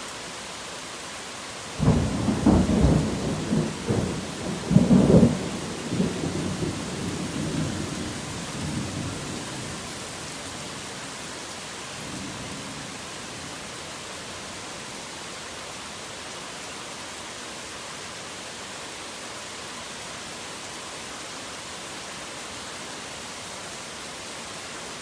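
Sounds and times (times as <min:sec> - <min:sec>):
heavy rain: 0:00.0 - 0:25.0
thunder clap rumbling: 0:01.8 - 0:09.7.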